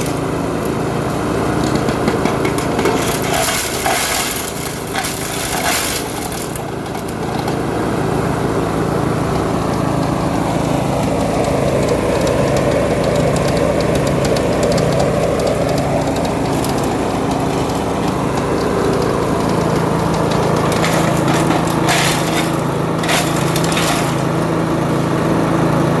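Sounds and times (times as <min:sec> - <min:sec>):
wood chipper shredding: 0:00.0 - 0:26.0
sharp loud cracks: 0:20.3 - 0:24.5.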